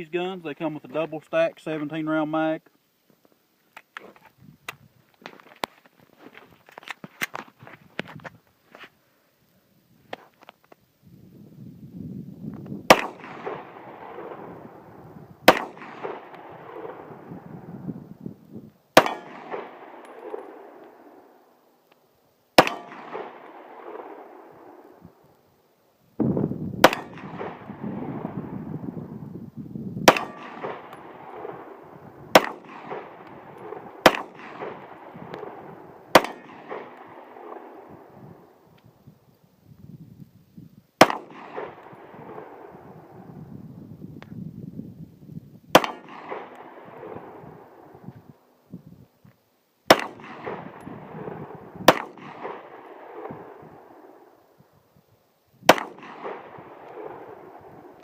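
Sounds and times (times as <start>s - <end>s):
pistol shots: 12.9s - 17.6s, 19.0s - 21.4s, 22.6s - 24.9s, 26.8s - 28.4s, 30.0s - 38.4s, 41.0s - 42.8s, 45.7s - 48.0s, 49.9s - 54.2s, 55.7s - 58.0s.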